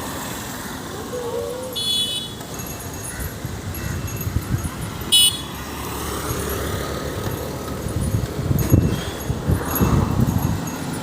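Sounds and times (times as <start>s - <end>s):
road traffic: 0.0s - 11.0s
high-pitched vehicle horn toot: 1.8s - 2.4s, 5.1s - 5.6s.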